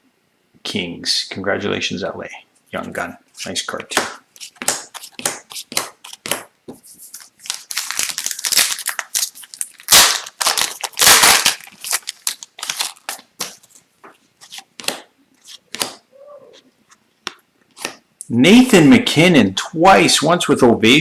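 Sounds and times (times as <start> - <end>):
cards rustling: 4.3 - 16.0
foil wrapper crinkling and tearing: 7.1 - 13.8.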